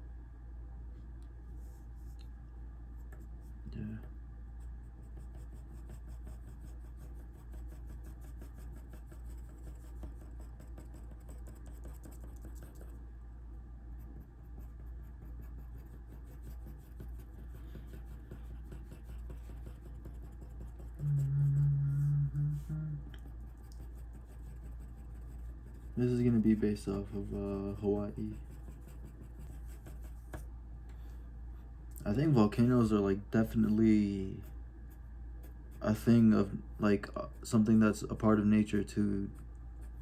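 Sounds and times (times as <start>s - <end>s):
low background hum: 0.0s - 40.0s
pencil scratching on paper: 4.6s - 13.0s, 14.0s - 30.5s.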